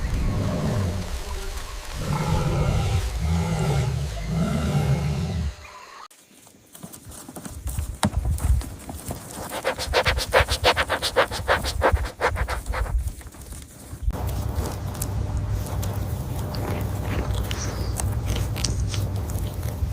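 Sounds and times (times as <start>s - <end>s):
quick evenly spaced pulses: 9.4s - 12.9s.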